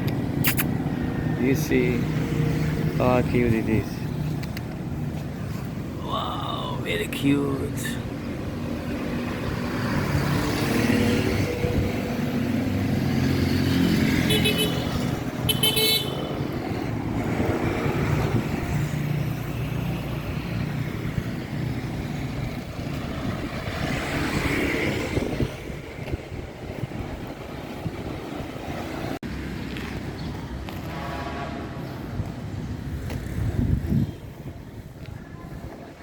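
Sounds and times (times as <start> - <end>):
car horn toots: 14.3 - 16.3.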